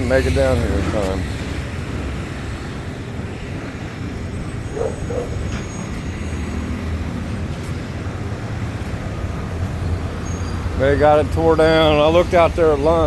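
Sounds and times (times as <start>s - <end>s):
road traffic rumble: 0.0s - 13.0s
short squeaks: 4.9s - 6.0s.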